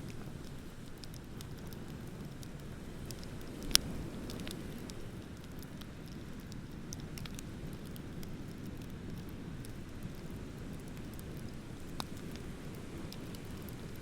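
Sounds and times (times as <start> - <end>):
bonfire crackling and popping: 0.0 - 14.0
ocean surf rumble: 2.8 - 5.2.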